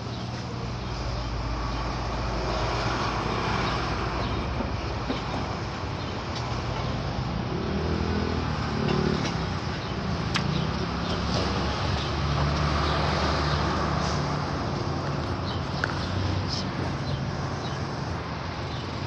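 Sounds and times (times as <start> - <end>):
road traffic noise: 0.0 - 19.0
vehicle engine: 0.0 - 19.0.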